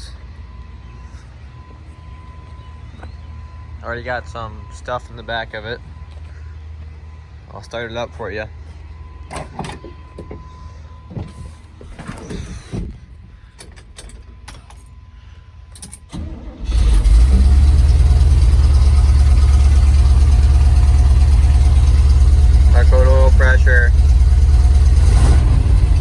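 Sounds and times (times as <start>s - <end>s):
engine starting and idling: 15.8s - 26.0s.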